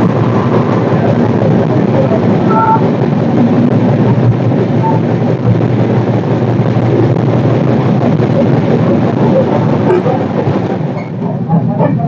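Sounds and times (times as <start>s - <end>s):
train rumbling on board: 0.0s - 12.0s
short tone: 2.5s - 2.8s.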